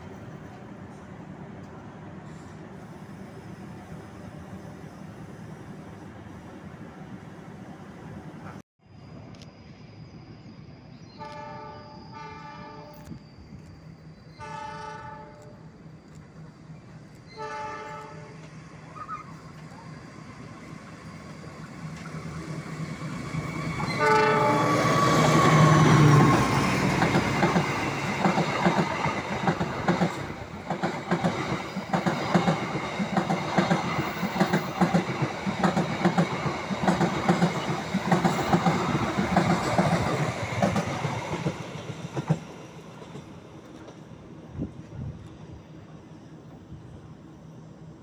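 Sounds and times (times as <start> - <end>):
train horn: 11.2 - 13.0, 14.4 - 15.6, 17.3 - 18.5, 23.8 - 25.8.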